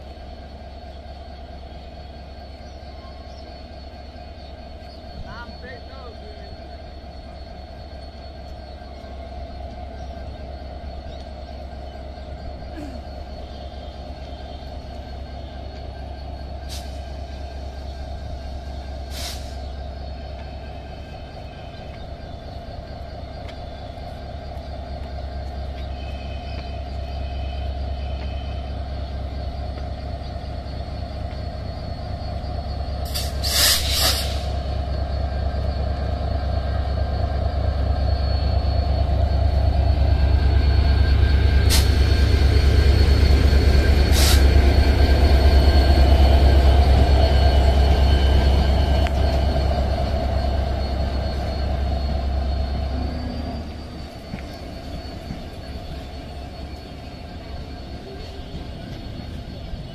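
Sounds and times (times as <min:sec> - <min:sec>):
train rolling past: 0:00.0 - 0:59.9
brief hiss: 0:19.1 - 0:19.6, 0:33.1 - 0:34.6.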